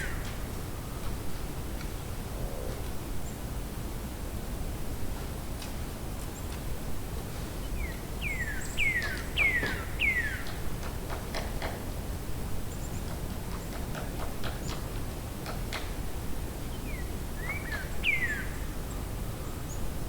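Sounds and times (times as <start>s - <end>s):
outdoor background hiss: 0.0s - 20.0s
distant woodpecker tapping: 8.8s - 11.8s, 13.0s - 16.0s.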